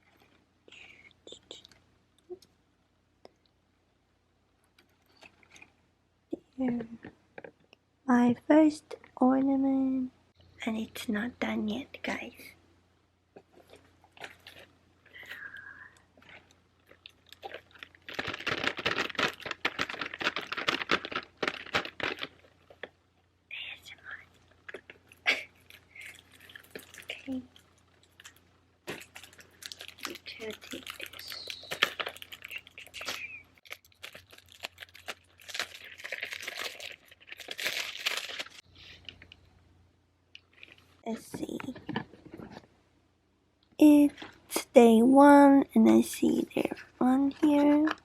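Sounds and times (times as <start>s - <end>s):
rapid small crackles and clicks: 13.4s - 39.5s, 40.3s - 42.6s
packaging crinkling and tearing: 13.6s - 15.4s, 16.2s - 23.0s, 24.1s - 39.4s.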